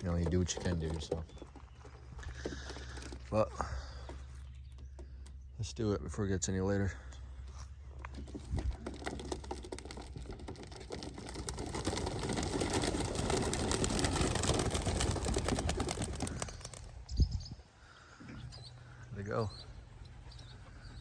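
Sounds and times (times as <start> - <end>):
pigeon wingbeats clattering: 0.0 - 4.0, 8.1 - 17.1.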